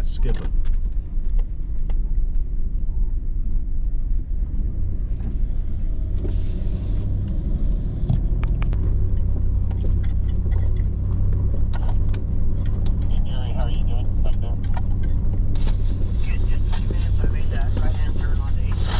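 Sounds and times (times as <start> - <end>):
engine rumbling: 0.0 - 18.9
clicks and rattles: 8.3 - 13.1.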